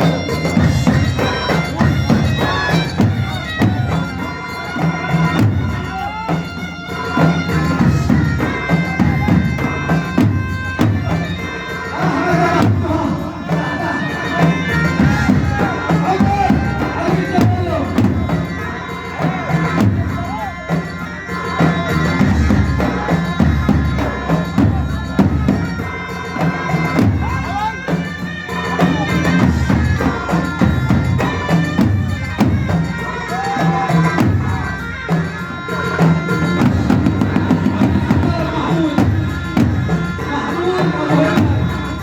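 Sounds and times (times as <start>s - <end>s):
drum and percussion beat: 0.0s - 42.0s
reedy wind instrument: 0.0s - 42.0s.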